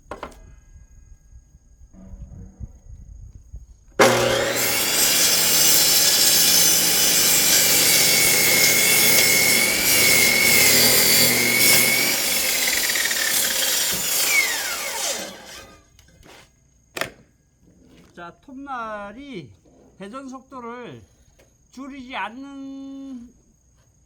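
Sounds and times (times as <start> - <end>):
cut-off saw cutting log: 4.0 - 15.8.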